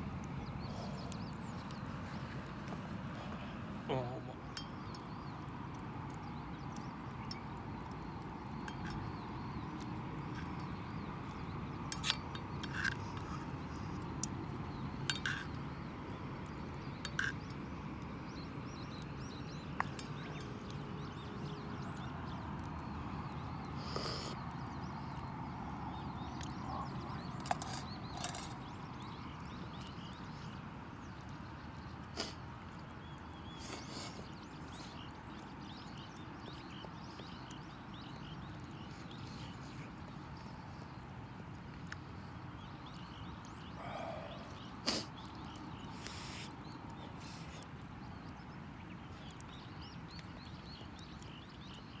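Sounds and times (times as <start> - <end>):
campfire crackling and popping: 0.0 - 43.7
faint bird chirps: 42.7 - 48.3.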